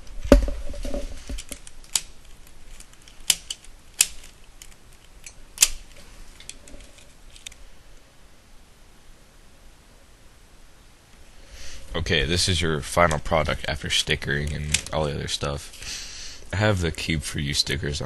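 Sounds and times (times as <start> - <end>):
loud plastic snap: 5.6 - 5.9.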